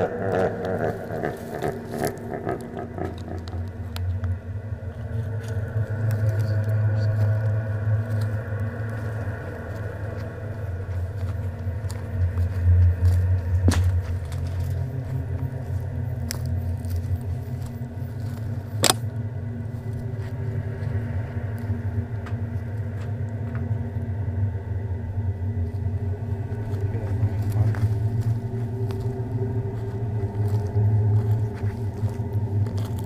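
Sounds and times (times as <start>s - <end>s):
faint hum tones: 0.0s - 33.0s
steady low rumble: 0.0s - 33.0s.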